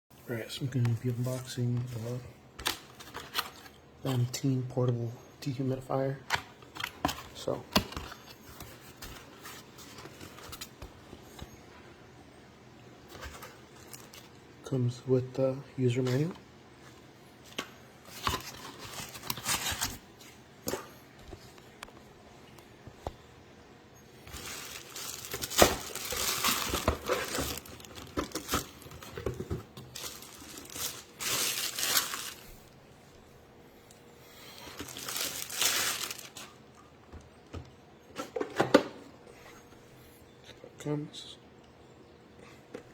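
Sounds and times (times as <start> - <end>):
packaging rustling: 6.4 - 11.5, 13.1 - 14.4, 18.0 - 20.3, 24.2 - 32.8, 34.5 - 36.6.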